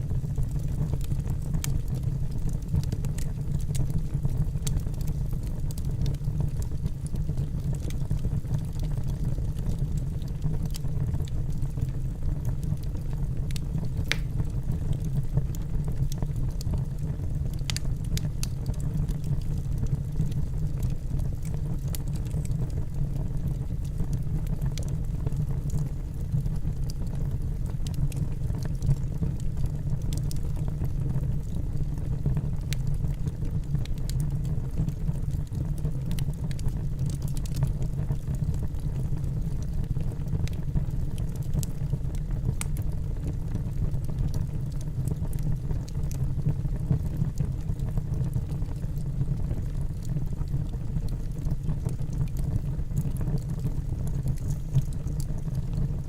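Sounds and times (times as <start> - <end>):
low rumble of flames: 0.0 - 56.0
logs crackling and popping: 0.2 - 56.0.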